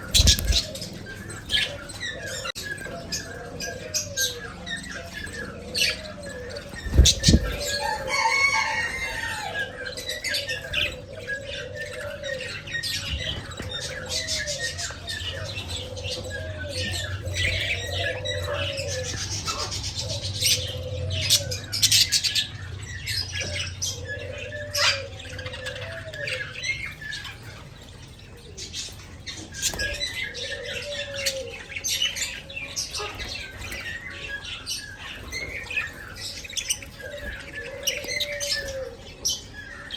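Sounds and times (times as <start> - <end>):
budgerigars chirping: 0.0 - 27.6.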